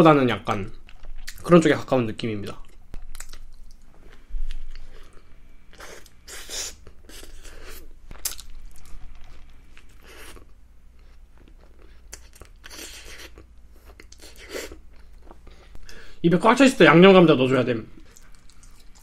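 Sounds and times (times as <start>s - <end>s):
person biting and chewing burger: 2.9s - 15.8s.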